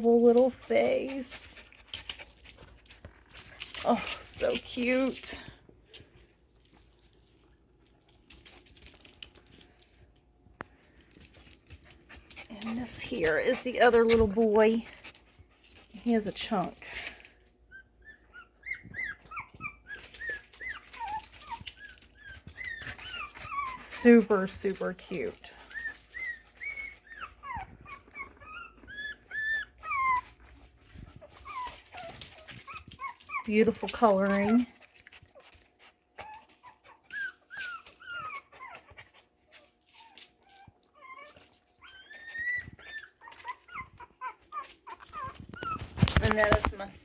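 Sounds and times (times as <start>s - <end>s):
puppy whimpering: 0.0s - 6.1s, 15.8s - 47.0s
light rustling: 42.6s - 47.0s.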